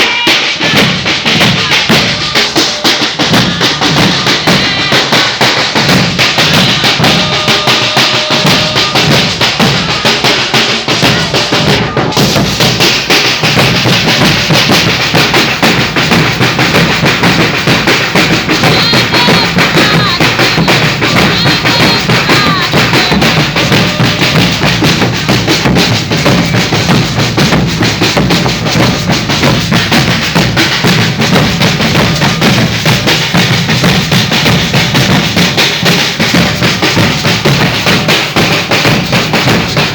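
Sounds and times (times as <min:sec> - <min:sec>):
snare drums: 0:00.0 - 0:39.9
deep bass drums: 0:10.9 - 0:39.9.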